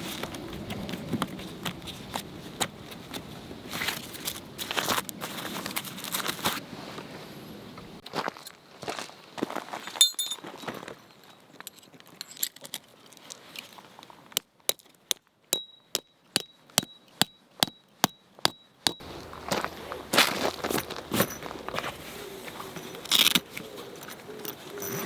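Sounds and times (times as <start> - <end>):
light ringing clinks: 9.8 - 12.6, 22.7 - 25.0
rustling: 19.0 - 25.0.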